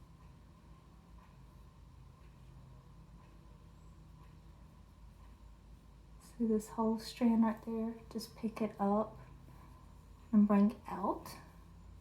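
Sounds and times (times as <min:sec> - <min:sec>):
faint soft ticks: 0:00.0 - 0:06.4
low steady hum: 0:00.0 - 0:12.0.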